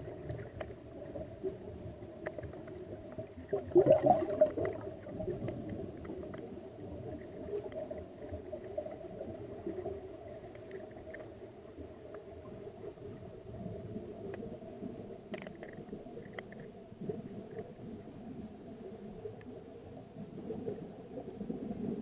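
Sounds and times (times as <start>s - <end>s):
muffled underwater rumble: 0.0s - 22.0s
faint clicks: 0.2s - 1.2s, 2.1s - 3.5s, 4.5s - 6.6s, 10.3s - 12.6s, 15.2s - 17.8s.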